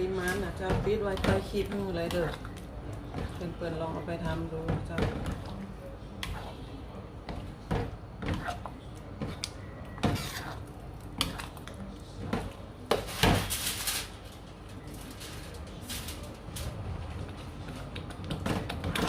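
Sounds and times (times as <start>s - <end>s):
spatula scraping and knocking pan: 7.2s - 10.6s.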